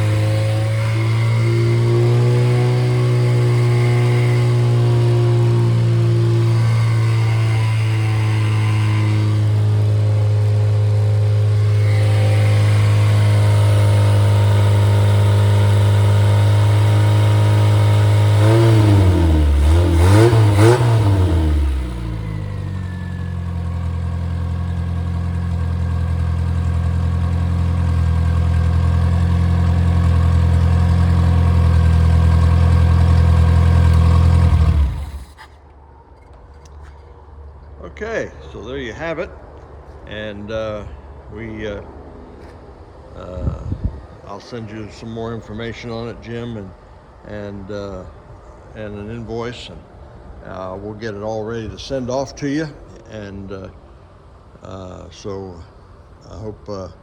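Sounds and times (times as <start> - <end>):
car engine idling and revving: 0.0 - 37.7.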